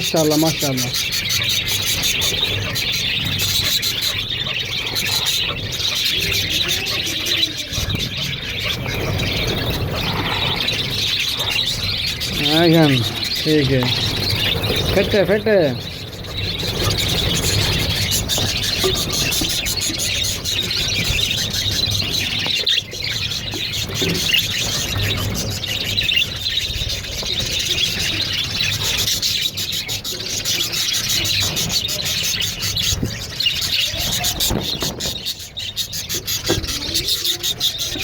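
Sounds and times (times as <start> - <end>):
parrots chirping and squealing: 0.0 - 38.0.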